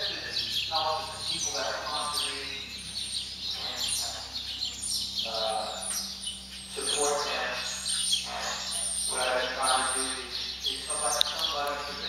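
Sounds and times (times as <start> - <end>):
small birds chirping: 0.0 - 12.0
person speaking indistinctly: 3.6 - 4.2, 5.3 - 5.8, 6.8 - 12.0.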